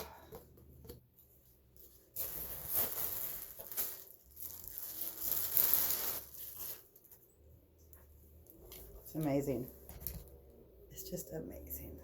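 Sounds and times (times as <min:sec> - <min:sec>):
packaging crinkling and rustling: 0:01.8 - 0:07.3.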